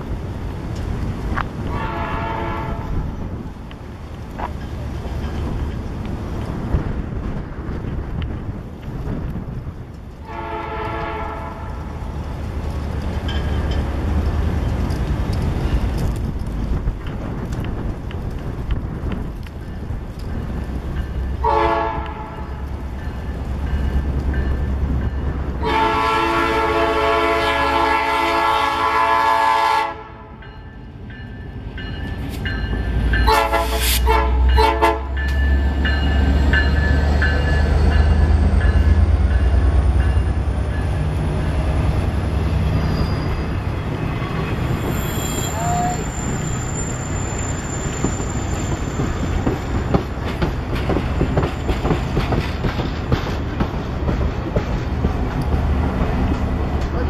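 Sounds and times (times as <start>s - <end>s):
locomotive engine rumbling: 0.0s - 57.0s
locomotive air horn blasts: 1.7s - 3.0s, 10.2s - 11.9s, 21.4s - 22.7s, 25.6s - 30.4s, 33.2s - 35.3s
wheels clattering over rail joints: 3.2s - 10.2s, 12.0s - 21.4s, 46.1s - 57.0s.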